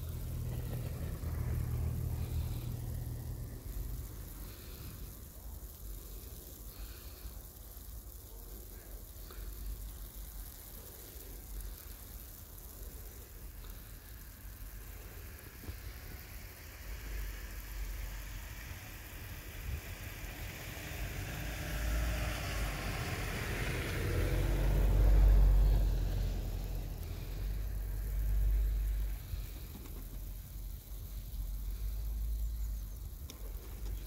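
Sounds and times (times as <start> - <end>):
car driving past: 20.2 - 29.1.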